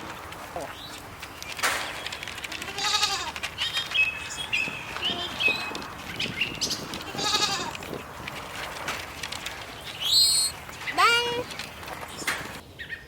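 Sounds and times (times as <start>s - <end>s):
small birds chirping: 0.1s - 13.0s
goat bleating: 2.6s - 3.4s, 7.0s - 7.8s.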